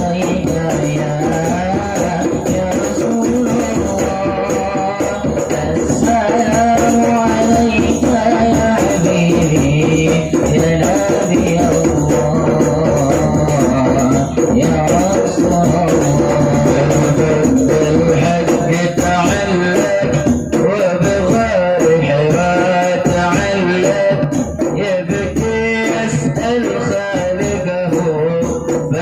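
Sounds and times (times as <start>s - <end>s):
hand percussion: 0.0s - 29.0s
person singing devotional song: 0.0s - 29.0s.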